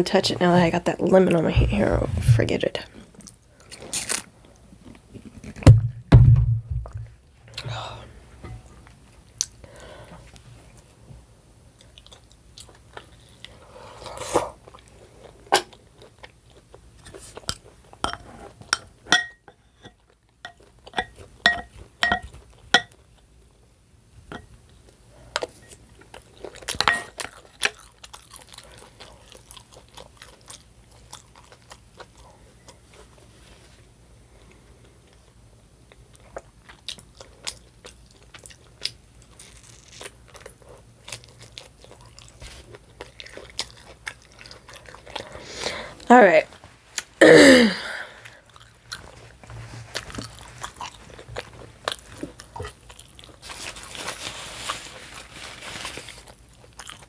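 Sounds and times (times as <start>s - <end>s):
person chewing food: 25.3s - 33.2s, 35.9s - 46.1s, 48.0s - 53.6s, 56.3s - 57.0s.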